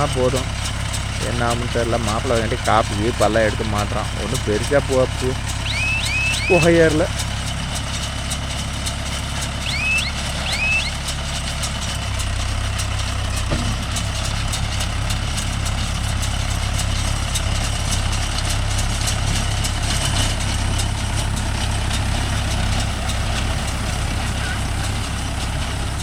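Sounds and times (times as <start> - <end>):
tractor engine running: 0.0 - 26.0
short rising chirp: 5.6 - 6.6, 9.6 - 11.0.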